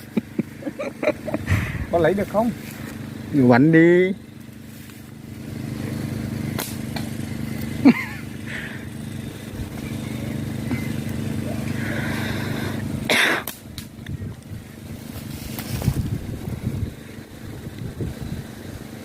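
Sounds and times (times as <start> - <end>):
small engine droning: 0.0 - 19.0.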